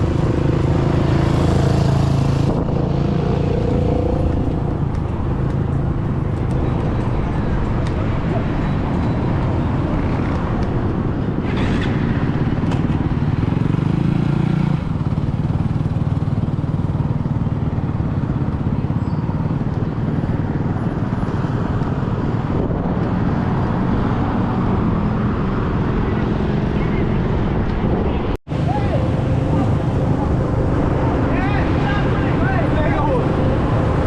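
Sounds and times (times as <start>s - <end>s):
engine revving: 0.0s - 5.1s
dirt bike engines running: 0.0s - 34.0s.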